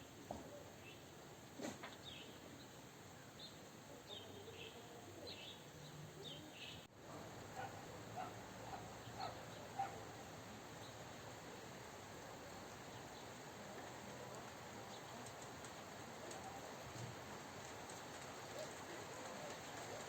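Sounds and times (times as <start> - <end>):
small birds chirping: 1.8 - 6.9, 7.6 - 11.1
rain hissing: 6.8 - 20.0.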